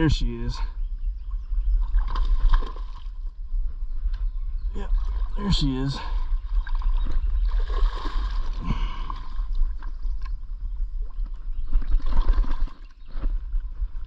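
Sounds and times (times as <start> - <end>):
fish splashing in water: 6.6 - 9.4.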